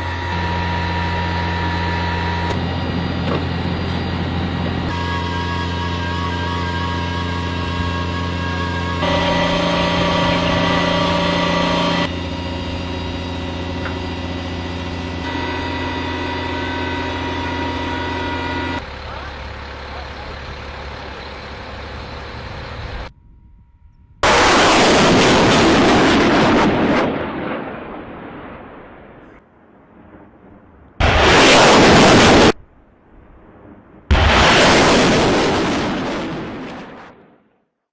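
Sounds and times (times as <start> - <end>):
rocket launch roar: 0.0 - 23.5, 24.1 - 37.6
heavy vehicle engine running: 0.0 - 27.6, 34.1 - 36.7.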